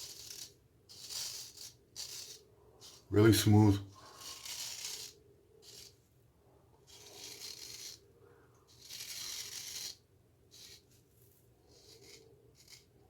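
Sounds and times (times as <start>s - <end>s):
razor scraping stubble: 0.0s - 6.0s, 6.9s - 8.0s, 8.7s - 10.0s, 11.7s - 13.0s.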